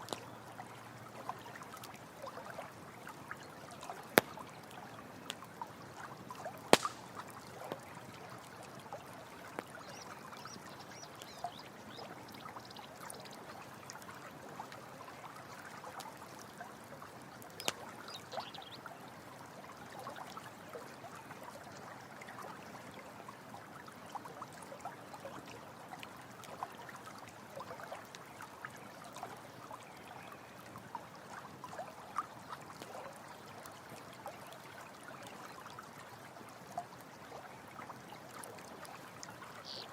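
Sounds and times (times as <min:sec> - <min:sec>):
stream trickling: 0:00.0 - 0:39.9
campfire pops: 0:04.1 - 0:04.6, 0:06.7 - 0:07.4, 0:17.6 - 0:17.8.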